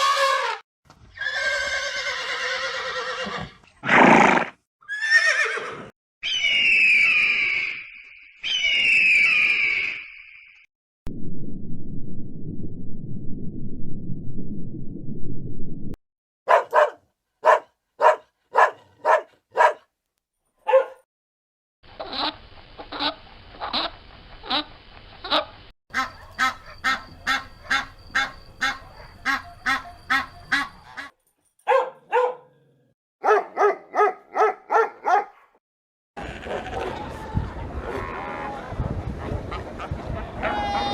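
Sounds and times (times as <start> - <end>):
low rumble: 11.1 - 16.0
repeated animal calls: 25.2 - 31.2.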